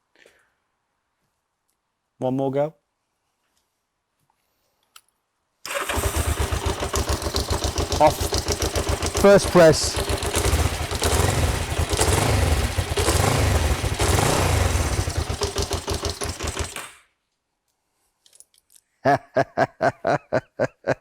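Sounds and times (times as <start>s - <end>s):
motorcycle engine spluttering: 5.7s - 17.0s
man laughing: 8.0s - 8.4s, 9.1s - 10.0s, 19.0s - 21.0s.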